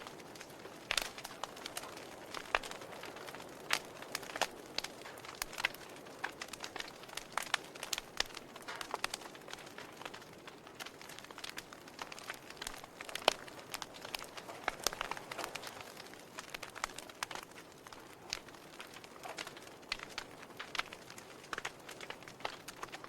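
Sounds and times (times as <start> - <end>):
soft steady hiss: 0.0 - 23.0
wood fire crackling: 0.0 - 23.0.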